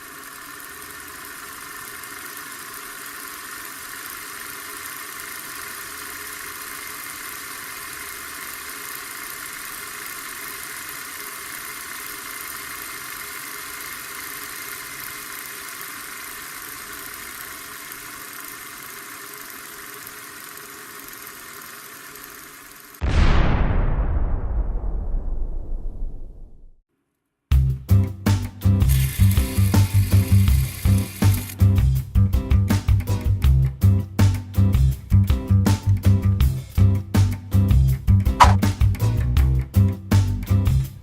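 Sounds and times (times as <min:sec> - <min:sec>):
motor humming: 0:00.0 - 0:23.0, 0:28.9 - 0:31.6.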